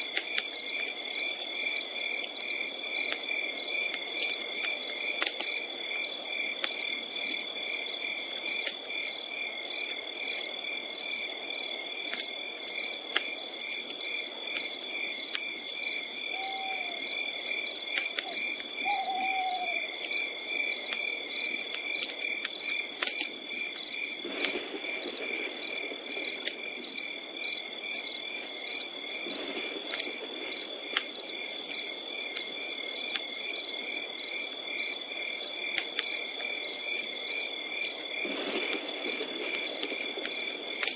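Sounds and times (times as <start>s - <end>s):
campfire crackling: 0.0s - 40.9s
crickets chirping: 0.0s - 40.9s
low hoots: 16.3s - 17.0s, 18.2s - 19.9s.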